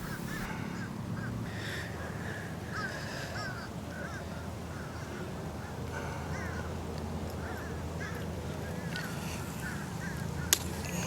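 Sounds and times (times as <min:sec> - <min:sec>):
birds chirping: 0:00.0 - 0:00.5
low hum: 0:00.0 - 0:00.8.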